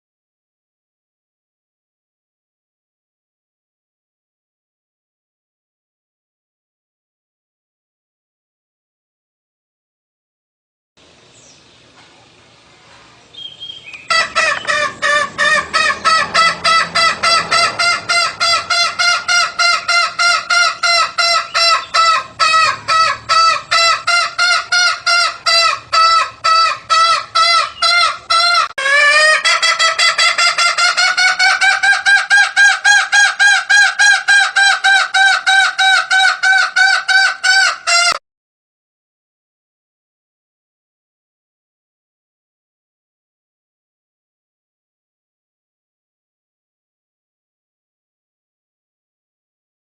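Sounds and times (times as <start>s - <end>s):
jungle fowl call lure: 13.9s - 38.2s.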